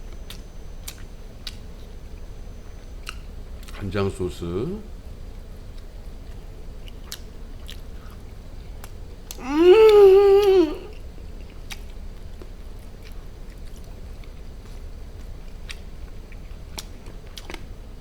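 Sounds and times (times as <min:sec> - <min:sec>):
person chewing food: 0:05.7 - 0:17.7
man humming: 0:09.4 - 0:11.0.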